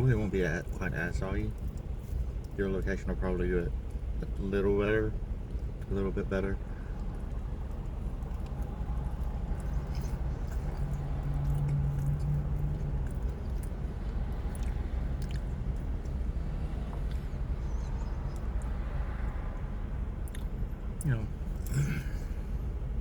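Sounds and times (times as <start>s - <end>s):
low rumble with hum: 0.0s - 23.0s
person chewing: 7.0s - 16.2s, 20.2s - 20.5s.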